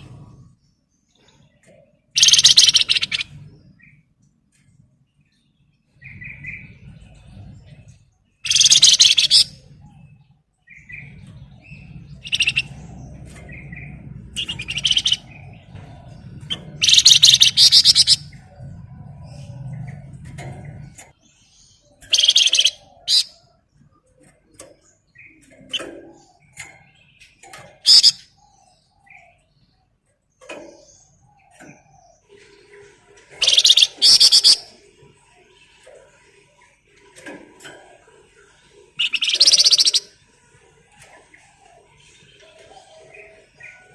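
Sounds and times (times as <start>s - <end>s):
songbird rattling trills: 2.2s - 3.4s, 8.4s - 9.8s, 10.8s - 18.4s, 22.0s - 23.4s, 25.4s - 28.4s, 32.4s - 34.8s, 38.9s - 40.2s.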